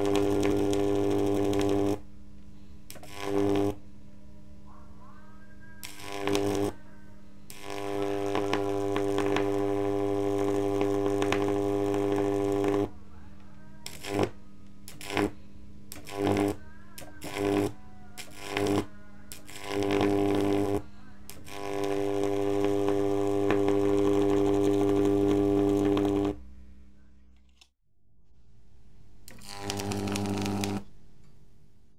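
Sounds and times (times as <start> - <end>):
electric arc buzzing: 0.0 - 2.1, 2.9 - 3.8, 5.8 - 6.8, 7.5 - 13.0, 13.8 - 26.5, 29.3 - 30.9.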